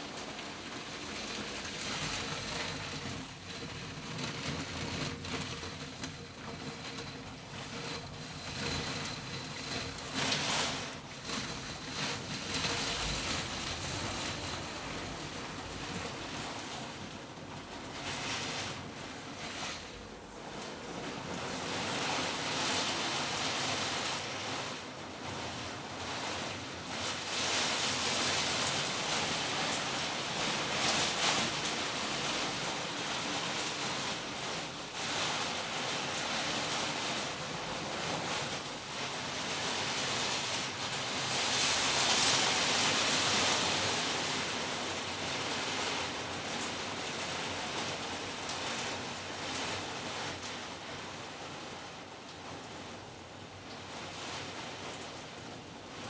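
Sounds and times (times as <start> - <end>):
heavy rain in gusting wind: 0.0 - 56.0.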